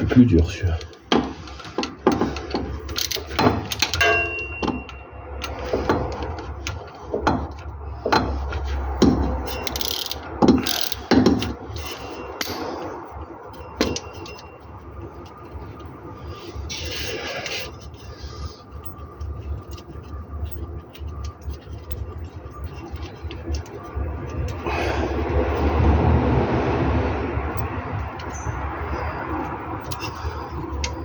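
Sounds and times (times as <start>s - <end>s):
ratchet wrench clicking: 2.8s - 4.2s, 9.0s - 12.7s, 27.4s - 31.0s
short metallic ring: 4.0s - 5.0s, 11.8s - 14.7s.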